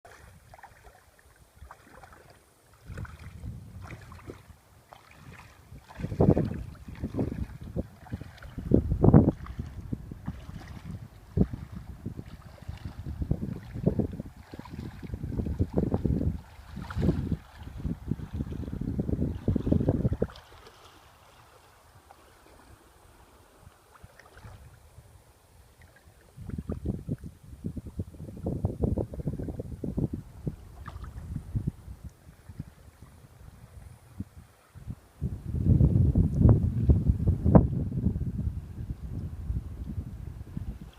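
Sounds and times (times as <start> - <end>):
wind buffeting microphone: 1.6 - 21.4, 26.2 - 40.9.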